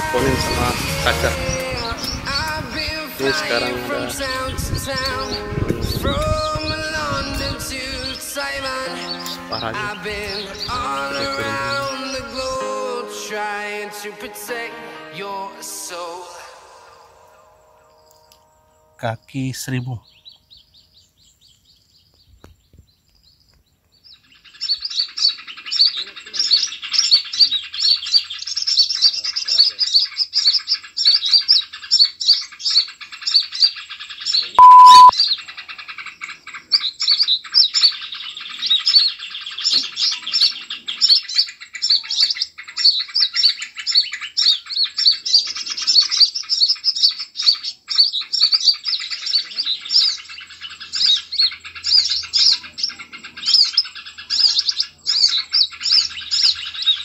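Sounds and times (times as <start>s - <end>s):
small birds chirping: 0.0s - 12.6s, 17.2s - 57.0s
loud steady beep: 34.6s - 35.1s.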